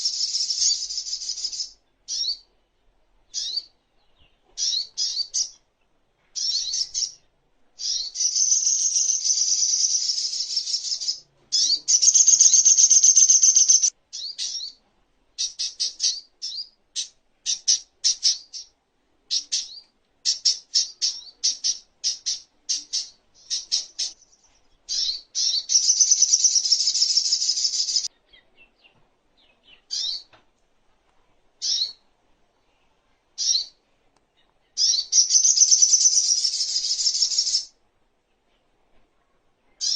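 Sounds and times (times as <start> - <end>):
sunbird trilling and chirping: 0.0 - 2.4, 3.3 - 5.6, 6.4 - 7.2, 7.8 - 14.8, 19.3 - 30.3, 31.6 - 32.0, 33.4 - 33.8, 34.8 - 37.7.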